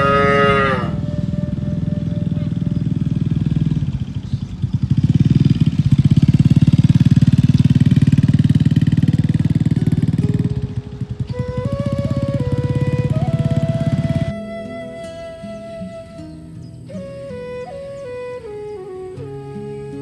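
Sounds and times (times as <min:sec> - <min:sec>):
small motorcycle engine running: 0:00.0 - 0:14.4.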